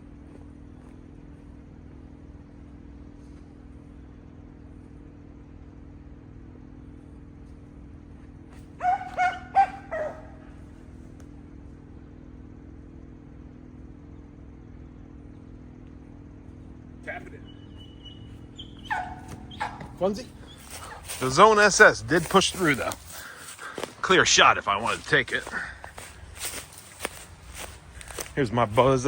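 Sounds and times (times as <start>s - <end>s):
low background hum: 0.0s - 29.0s
dog barking: 8.8s - 10.6s, 18.6s - 21.2s.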